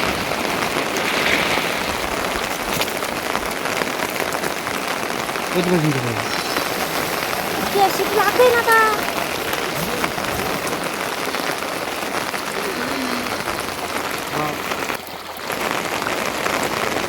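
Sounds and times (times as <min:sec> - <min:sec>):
steady rain hissing: 0:00.0 - 0:17.0
faint voices: 0:05.5 - 0:15.0.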